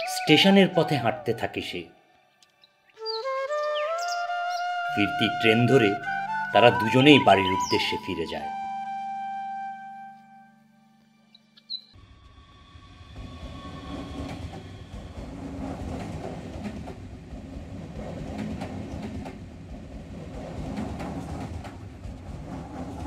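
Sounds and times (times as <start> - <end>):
train rumbling: 12.0 - 23.0
wheels clattering over rail joints: 13.5 - 23.0.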